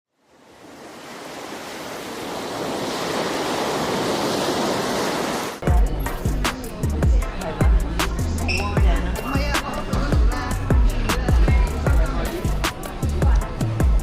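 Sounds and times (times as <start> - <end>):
ocean surf rushing: 0.2 - 5.6
music with strong bass beat: 5.6 - 14.0.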